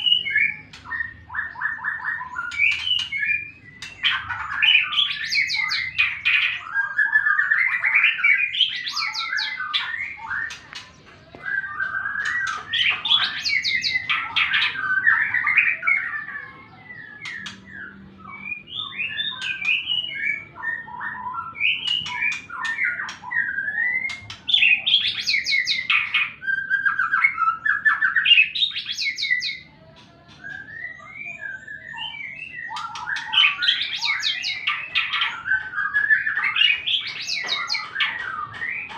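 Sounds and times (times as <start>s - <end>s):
bird singing whistled phrases: 0.0s - 29.7s, 30.3s - 38.9s.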